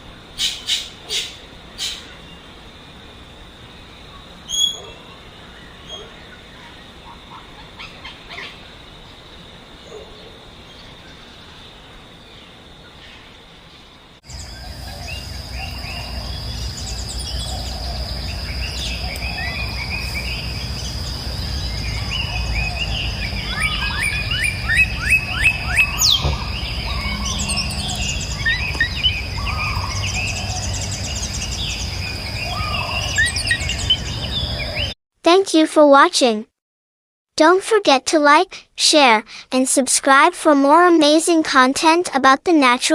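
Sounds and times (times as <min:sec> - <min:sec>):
steady high-pitched whine: 0:14.2 - 0:34.2
birds chirping and calling: 0:14.3 - 0:34.9
low rumble: 0:24.6 - 0:32.2.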